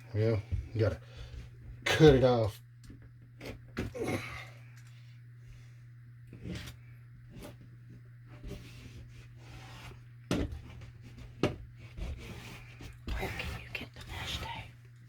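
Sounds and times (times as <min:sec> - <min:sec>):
steady low hum: 0:00.0 - 0:15.0
soft rubs and knocks of handling: 0:05.4 - 0:14.8.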